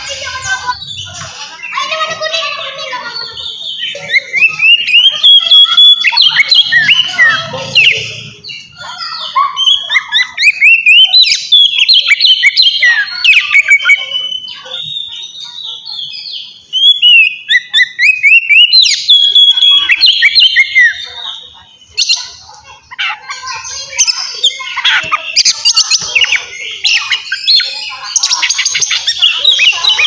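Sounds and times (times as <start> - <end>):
bird singing whistles and chirps: 3.4 - 8.8, 9.6 - 22.3.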